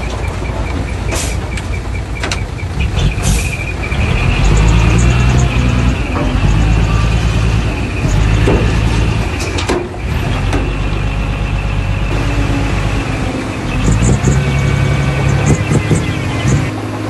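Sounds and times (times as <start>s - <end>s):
heavy machinery diesel engine: 0.0s - 17.0s
sharp knocks: 15.3s - 16.7s.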